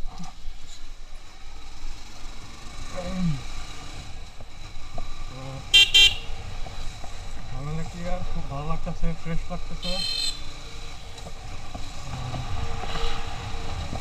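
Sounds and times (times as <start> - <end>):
road traffic: 0.0 - 14.0
vehicle horn toots: 5.7 - 6.4, 9.8 - 10.5.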